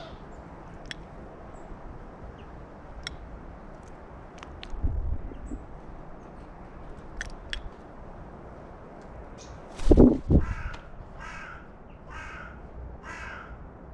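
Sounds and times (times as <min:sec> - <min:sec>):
crow cawing: 0:00.0 - 0:00.3, 0:10.4 - 0:13.6.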